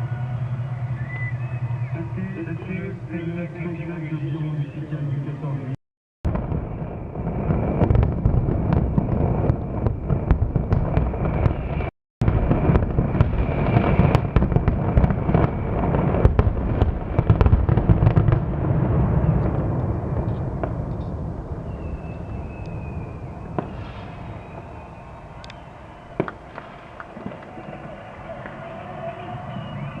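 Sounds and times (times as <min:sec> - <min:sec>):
low rumble: 0:05.6 - 0:28.4
fireworks cracks and bangs: 0:06.2 - 0:30.0.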